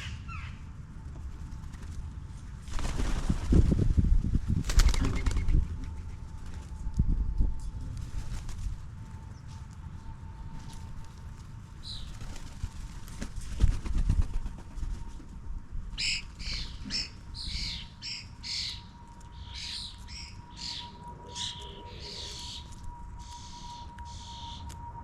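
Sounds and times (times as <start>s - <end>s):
faint steady hum: 0.0s - 25.0s
birds chirping: 16.0s - 24.7s
low rumble: 16.7s - 25.0s.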